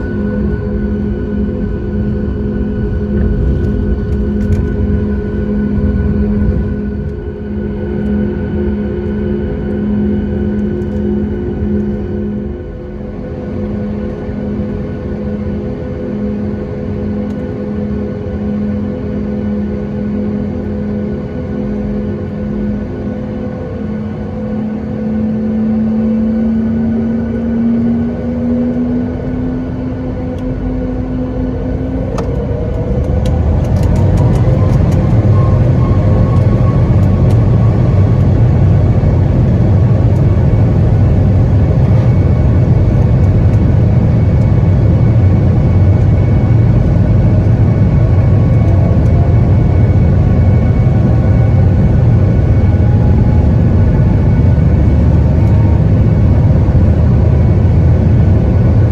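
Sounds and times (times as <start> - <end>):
loud low rumble: 0.0 - 16.4, 24.4 - 58.9
jet engines spooling up: 22.4 - 58.9.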